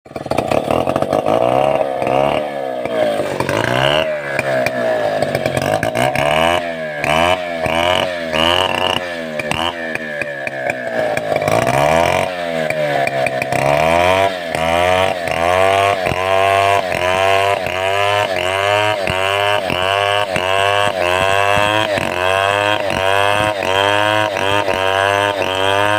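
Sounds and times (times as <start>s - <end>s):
chainsaw cutting wood: 0.1s - 25.9s.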